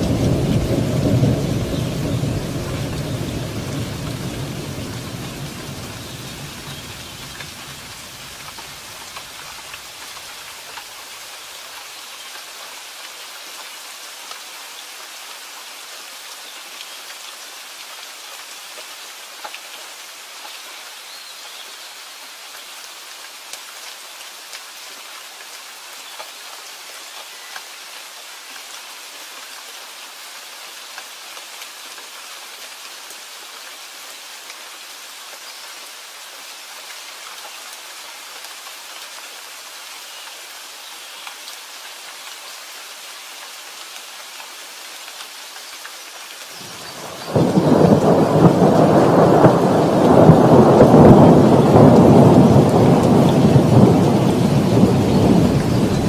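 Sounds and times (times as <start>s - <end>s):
low rumble of thunder: 0.0s - 8.3s, 46.9s - 56.0s
steady rain falling: 0.0s - 56.0s.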